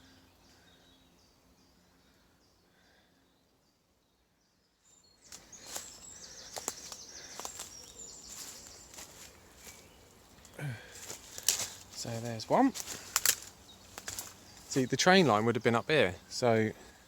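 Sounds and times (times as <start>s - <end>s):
busy bird song: 0.0s - 17.0s
small bird chirping: 4.7s - 17.0s
rustling: 5.3s - 14.9s.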